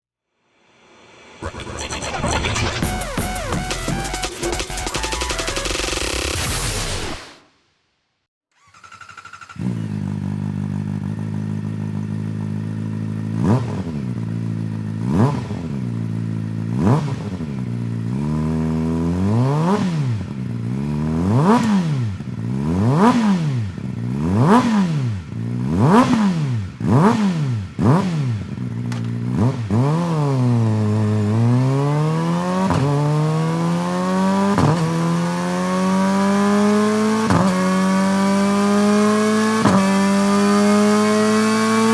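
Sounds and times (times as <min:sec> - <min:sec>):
motorcycle engine idling and revving: 0:08.5 - 0:41.9.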